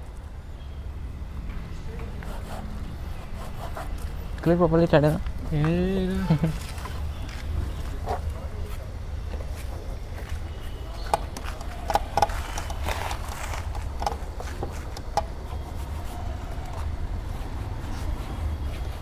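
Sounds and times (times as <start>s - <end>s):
sharp clicks and knocks: 11.0s - 15.8s.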